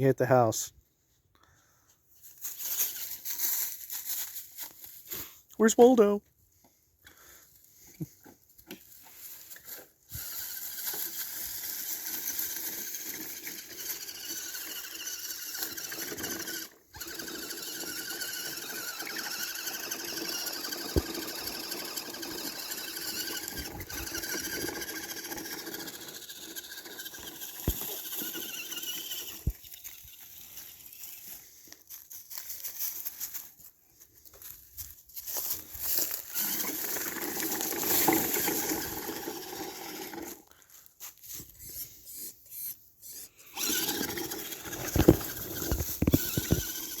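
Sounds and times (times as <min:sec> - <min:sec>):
electric motor and gearbox whining: 0:09.5 - 0:31.5, 0:35.8 - 0:40.4, 0:41.4 - 0:47.0.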